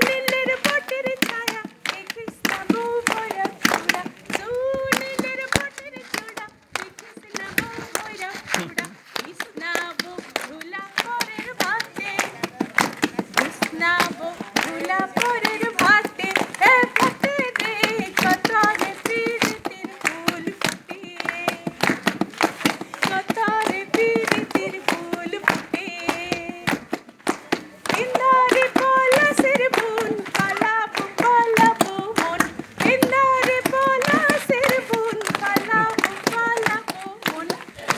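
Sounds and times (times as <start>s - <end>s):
people clapping hands: 0.0s - 37.9s
people singing along: 27.9s - 37.1s.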